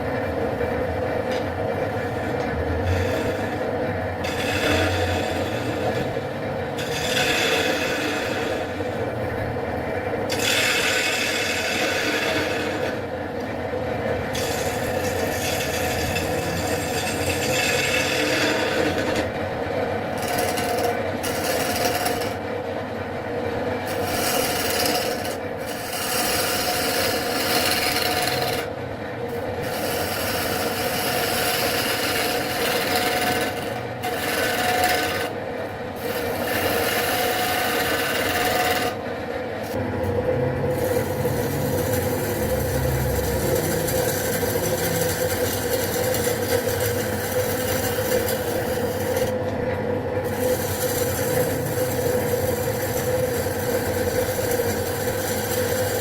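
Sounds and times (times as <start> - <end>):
tool scraping spinning wood: 0.0 - 39.8, 40.6 - 56.0
wood lathe humming: 0.0 - 56.0.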